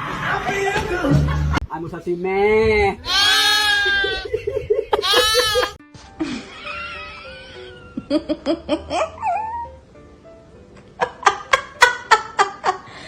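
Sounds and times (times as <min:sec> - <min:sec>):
background music: 0:00.0 - 0:01.7, 0:03.1 - 0:13.0
high-pitched squealing laughter: 0:03.1 - 0:05.8, 0:06.4 - 0:08.1.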